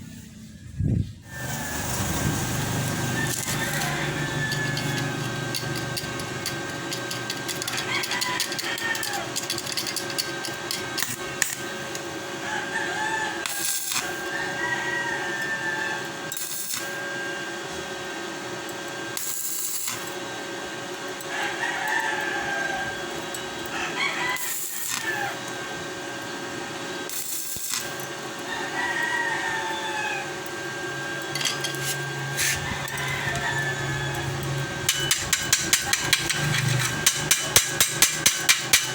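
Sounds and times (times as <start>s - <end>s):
steady hum: 0.0s - 12.6s, 30.2s - 38.9s
roosters crowing: 1.3s - 17.1s, 21.2s - 26.2s, 27.8s - 38.9s.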